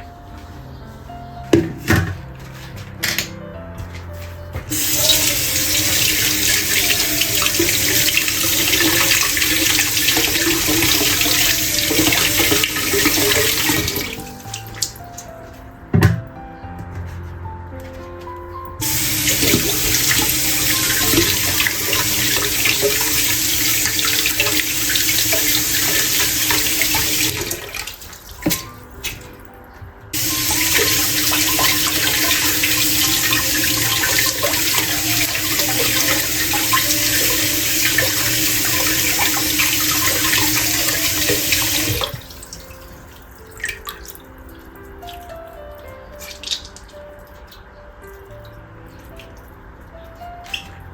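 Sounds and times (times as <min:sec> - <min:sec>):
soft background music: 0:00.0 - 0:50.9
tap water running into sink: 0:04.7 - 0:15.2, 0:18.8 - 0:29.2, 0:30.2 - 0:44.1.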